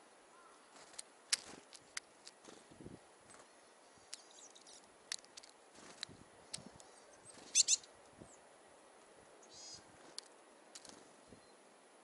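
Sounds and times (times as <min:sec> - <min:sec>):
small birds high calls: 0:00.3 - 0:00.9, 0:02.4 - 0:04.9, 0:06.1 - 0:08.8, 0:09.4 - 0:10.0.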